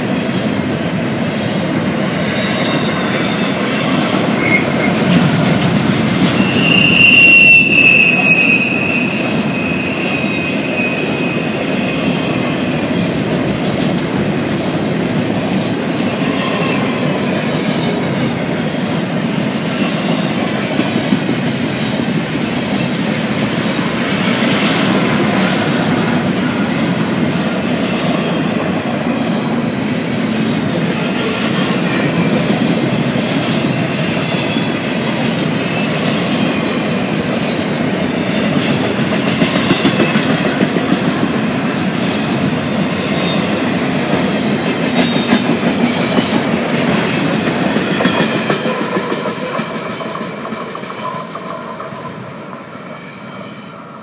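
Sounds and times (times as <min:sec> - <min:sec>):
steel wheels clattering on rail: 0:00.0 - 0:53.5
high-pitched wheel squeals: 0:02.0 - 0:11.6.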